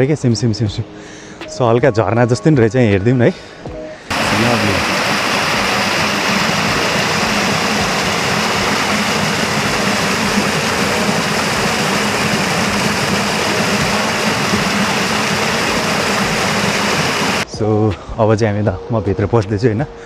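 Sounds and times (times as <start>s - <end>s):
small waterfall splashing: 4.1s - 17.4s.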